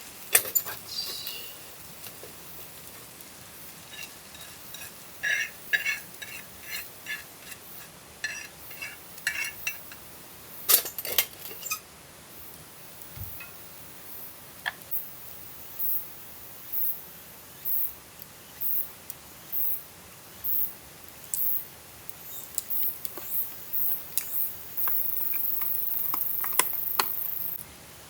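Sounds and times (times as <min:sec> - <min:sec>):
metal utensil clinking on cookware: 0:00.3 - 0:00.9, 0:03.9 - 0:07.6, 0:08.2 - 0:10.0, 0:10.7 - 0:11.8.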